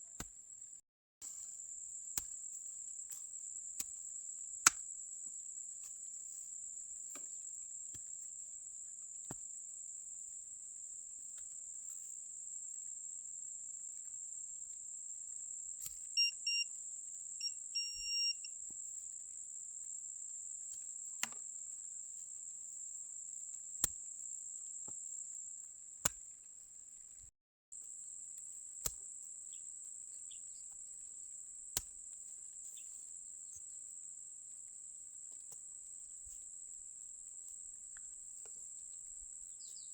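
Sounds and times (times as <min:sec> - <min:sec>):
insect chorus: 0:01.4 - 0:25.7, 0:27.8 - 0:31.6, 0:32.2 - 0:39.9
metal detector beeps: 0:16.2 - 0:16.7, 0:17.4 - 0:18.5.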